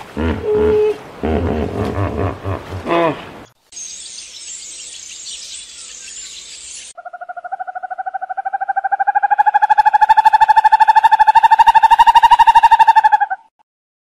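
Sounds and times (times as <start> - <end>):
animal trilled call: 7.0 - 13.5.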